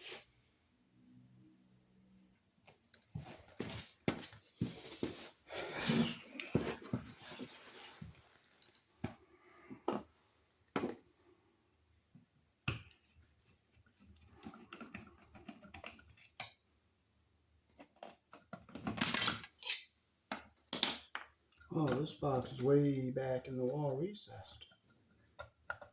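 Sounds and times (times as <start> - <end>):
soft rustling: 2.8 - 9.2.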